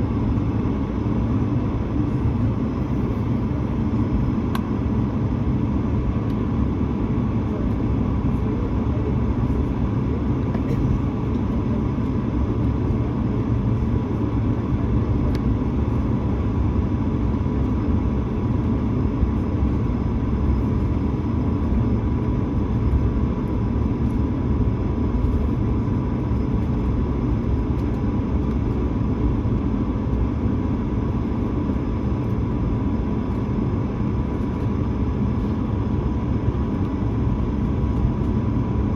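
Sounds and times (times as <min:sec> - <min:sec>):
aircraft cabin engine rumble: 0:00.0 - 0:38.9
jet engine whine: 0:00.0 - 0:38.9.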